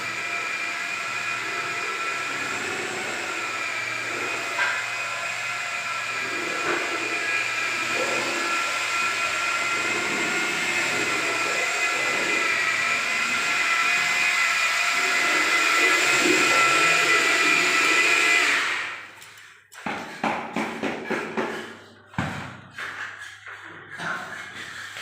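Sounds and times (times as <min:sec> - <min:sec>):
electric power tool whining: 0:00.0 - 0:19.1.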